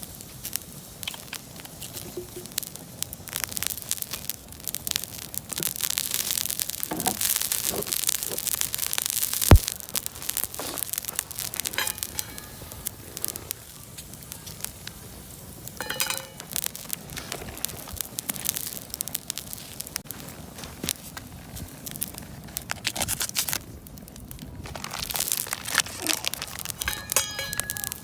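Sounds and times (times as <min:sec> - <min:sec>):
campfire crackling and popping: 0:00.0 - 0:28.0
sharp thump: 0:09.5 - 0:09.7.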